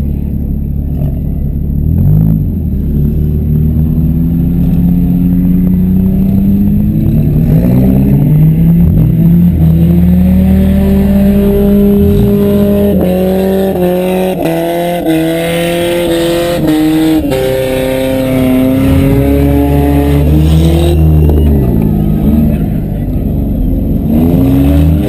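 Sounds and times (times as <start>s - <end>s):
car engine revving: 0.0s - 25.0s
car engines running loud: 0.0s - 25.0s.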